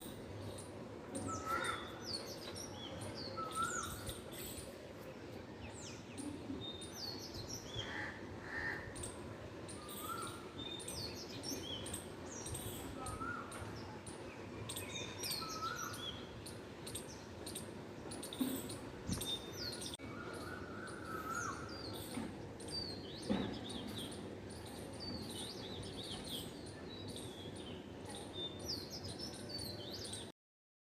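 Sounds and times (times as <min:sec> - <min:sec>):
small birds chirping: 0:00.0 - 0:08.0, 0:08.8 - 0:30.3
low background noise: 0:00.0 - 0:30.3.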